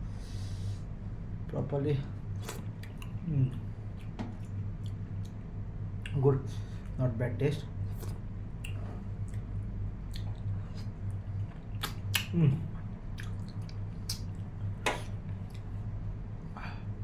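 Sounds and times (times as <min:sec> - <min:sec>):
steady low hum: 0:00.0 - 0:17.0
chewing with wet clicks: 0:02.3 - 0:07.0, 0:07.9 - 0:15.9.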